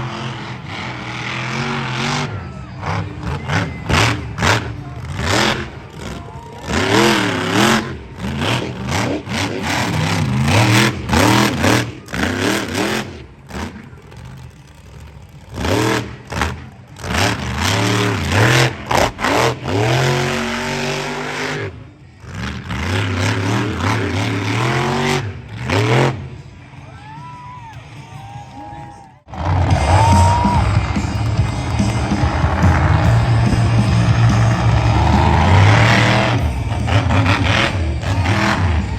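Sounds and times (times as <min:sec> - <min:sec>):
vehicle engine revving: 0:00.0 - 0:26.8, 0:29.2 - 0:38.9.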